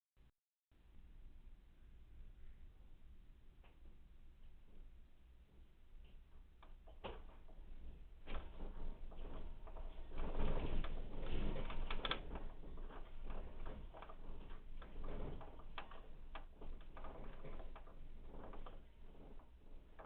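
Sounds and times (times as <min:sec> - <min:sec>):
household objects rattling: 0:06.6 - 0:20.0
low rumble: 0:07.5 - 0:20.0.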